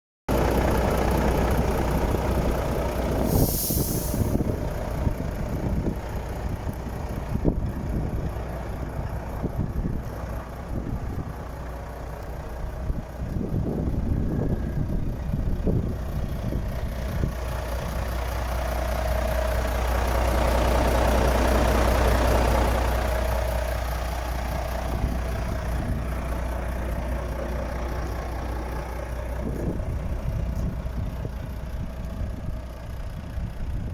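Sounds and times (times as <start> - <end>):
truck diesel engine idling: 0.3 - 33.9
air hiss: 3.2 - 4.4.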